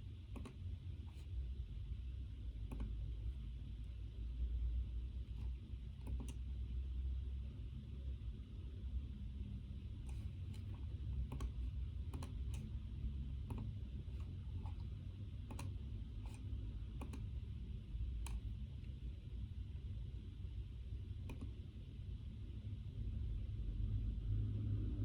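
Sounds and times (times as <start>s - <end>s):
steady low rumble: 0.0s - 25.0s
computer keys clicking: 0.3s - 0.6s, 2.7s - 3.0s, 5.4s - 6.4s, 10.1s - 12.7s, 13.4s - 13.8s, 14.6s - 17.3s, 18.2s - 18.5s, 21.2s - 21.6s.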